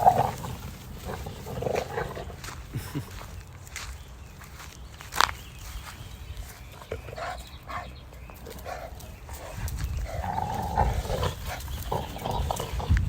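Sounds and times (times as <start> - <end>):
dogs vocalising: 0.0 - 3.0, 6.4 - 13.0.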